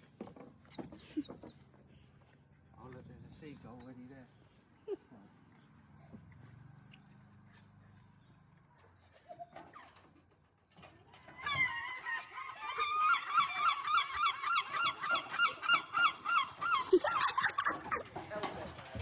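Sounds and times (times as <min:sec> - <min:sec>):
seagull calling: 0:11.2 - 0:18.1.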